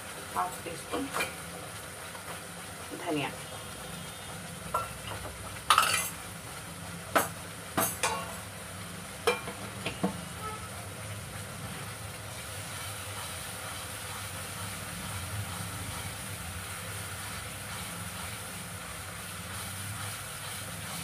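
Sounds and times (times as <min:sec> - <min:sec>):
food sizzling in oil: 0:00.0 - 0:21.0
sharp knocks against pan: 0:07.1 - 0:08.4, 0:09.2 - 0:10.2
spatula stirring in wok: 0:11.3 - 0:21.0.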